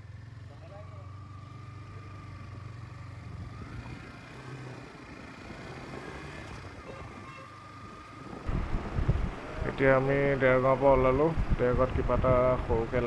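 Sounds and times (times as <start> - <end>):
road noise: 0.0 - 13.0
motorcycle engine running: 8.5 - 13.0
thin steady whine: 8.5 - 13.0.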